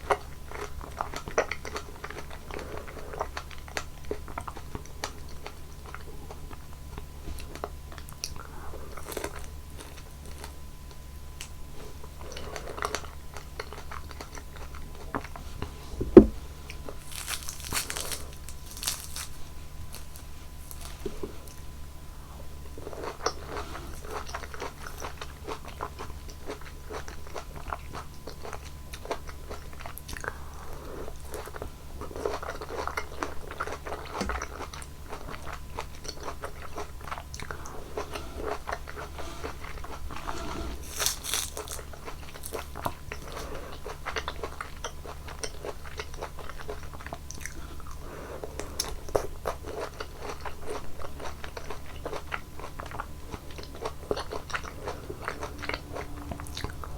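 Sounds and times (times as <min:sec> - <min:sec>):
chewing crunchy fruit: 0:00.0 - 0:56.9
low hum: 0:15.7 - 0:16.8, 0:37.3 - 0:41.4, 0:53.6 - 0:56.9.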